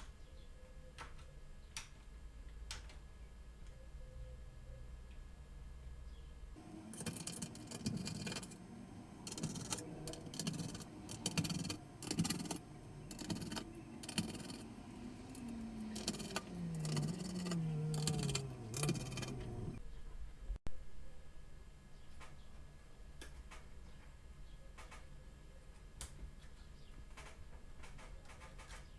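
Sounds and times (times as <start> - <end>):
computer parts clicking and rattling: 6.6 - 19.8.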